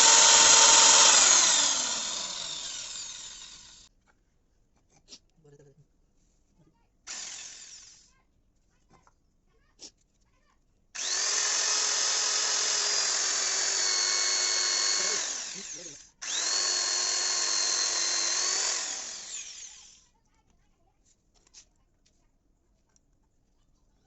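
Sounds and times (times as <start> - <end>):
small electric motor whining: 0.0 - 3.9, 7.1 - 8.1, 11.0 - 20.1.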